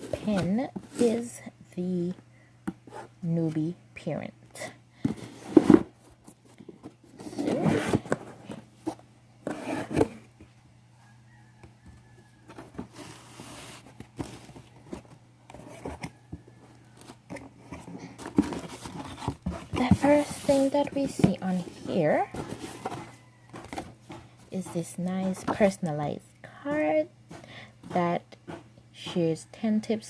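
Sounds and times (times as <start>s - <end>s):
cardboard tearing and scraping: 7.1s - 8.5s.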